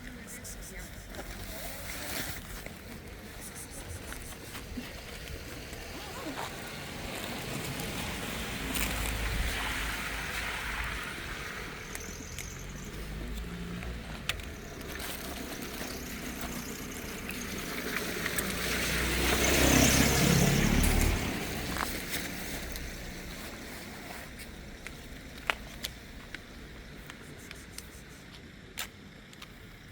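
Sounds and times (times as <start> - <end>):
vehicle driving past: 6.5 - 23.3.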